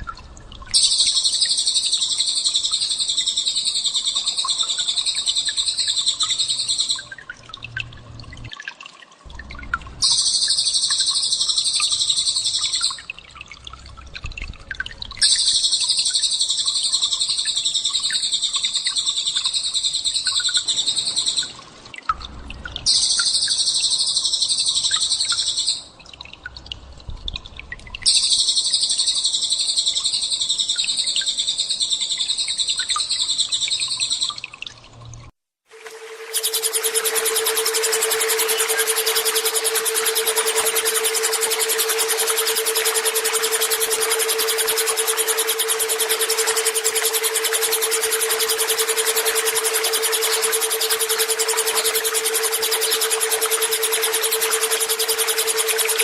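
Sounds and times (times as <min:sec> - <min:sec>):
high-pitched bird trilling: 0:00.8 - 0:07.1, 0:10.0 - 0:13.0, 0:15.2 - 0:21.5, 0:35.9 - 0:56.0
faint bird chirping: 0:00.8 - 0:07.2, 0:36.0 - 0:56.0.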